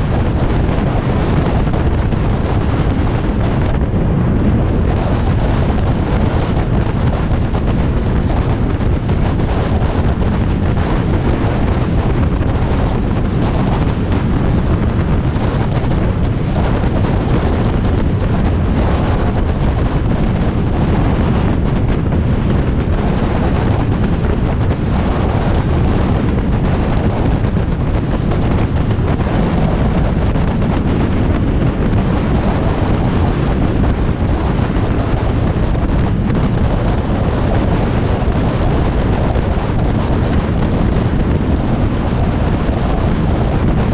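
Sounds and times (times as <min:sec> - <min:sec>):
wind rushing over microphone: 0:00.0 - 0:43.9.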